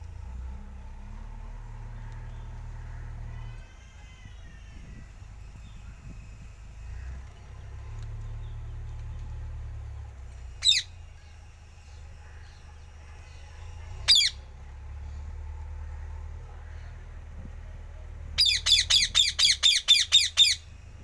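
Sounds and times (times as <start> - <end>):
parrot squawking: 10.6 - 10.9, 14.1 - 14.4, 18.4 - 20.7.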